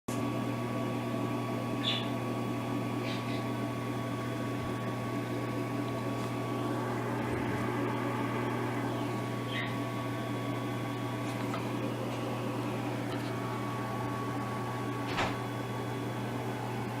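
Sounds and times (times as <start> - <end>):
low mechanical hum: 0.1 - 17.0
faint constant whine: 4.1 - 17.0.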